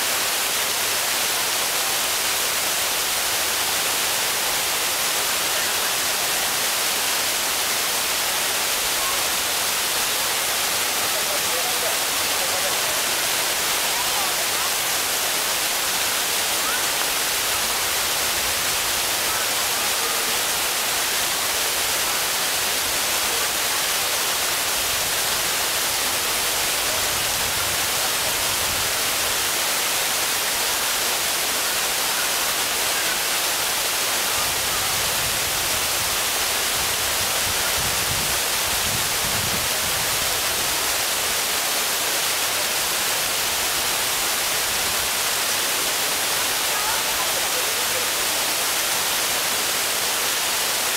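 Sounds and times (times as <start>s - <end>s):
waterfall rushing: 0.0s - 50.9s.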